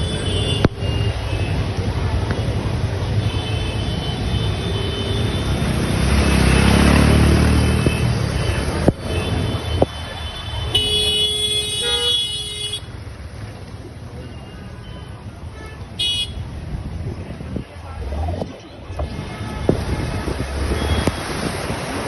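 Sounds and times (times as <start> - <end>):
vehicle engine passing: 5.4 - 8.7
vehicle horn: 10.6 - 12.9, 15.5 - 16.4.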